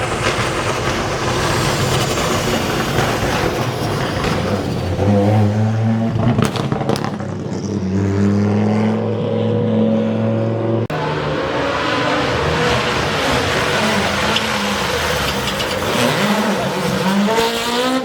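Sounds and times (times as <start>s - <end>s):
rally car engine at high revs: 0.0s - 18.0s
engine cracks: 12.6s - 17.7s.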